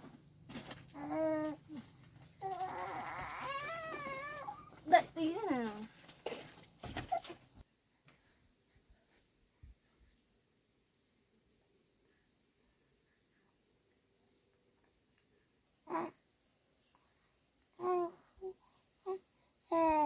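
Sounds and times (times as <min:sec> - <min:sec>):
crickets shrilling: 0:00.0 - 0:08.4.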